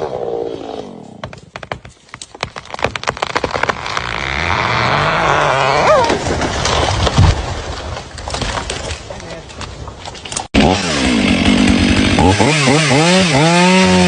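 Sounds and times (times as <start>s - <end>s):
tree wood cracking and snapping: 1.2s - 14.0s
rush of falling tree: 2.3s - 9.1s.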